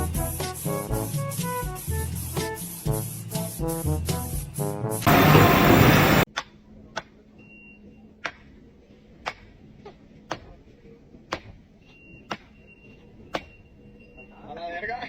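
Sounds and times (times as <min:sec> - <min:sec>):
steady low hum: 0:05.1 - 0:06.3.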